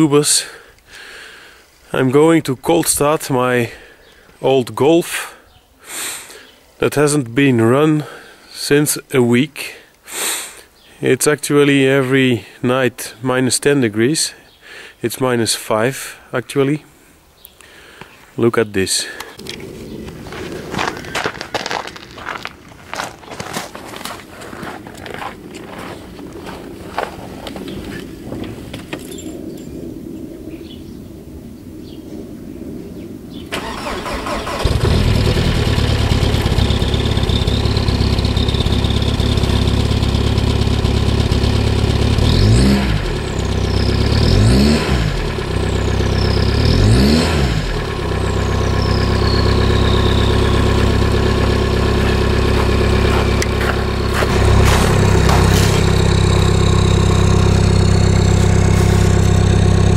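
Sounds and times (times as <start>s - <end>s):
diesel engine starting and revving: 33.5s - 59.9s.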